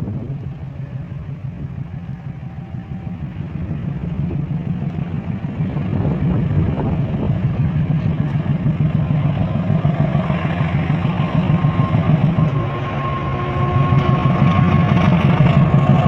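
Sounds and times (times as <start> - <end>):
diesel locomotive engine rumbling: 0.0 - 16.0
faint high tone: 9.1 - 16.0.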